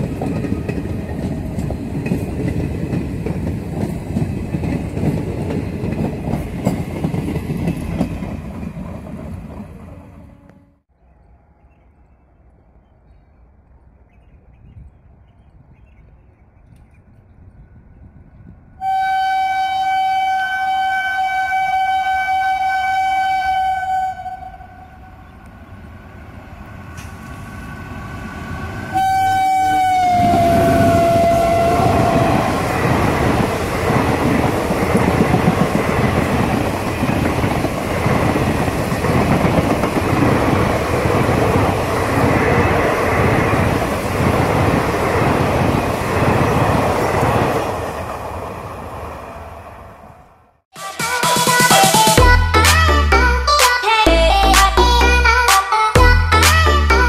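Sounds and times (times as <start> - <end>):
train wheels clattering on rails: 0.0 - 10.1, 30.2 - 48.3
train horn blast: 10.2 - 10.8, 18.8 - 25.3, 28.8 - 33.6.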